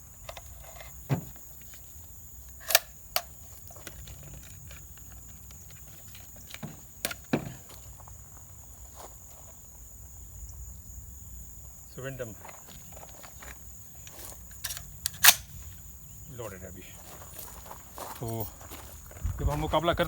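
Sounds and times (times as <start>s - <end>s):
rifle clicks and knocks: 2.4s - 7.7s, 12.9s - 15.8s.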